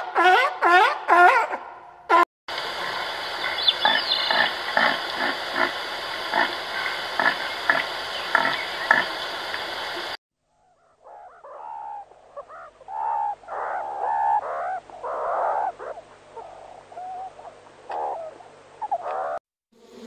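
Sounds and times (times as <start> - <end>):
meerkats squealing and chirping: 10.8 - 19.4.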